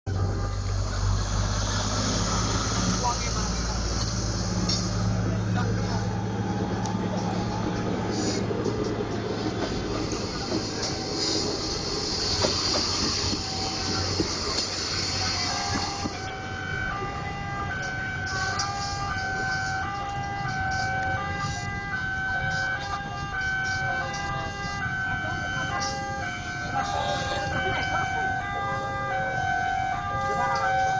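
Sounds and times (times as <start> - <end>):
loud rushing hiss: 0.1 - 16.3
train rumbling on rails: 0.1 - 30.9
two-tone crossing alarm: 0.1 - 30.9.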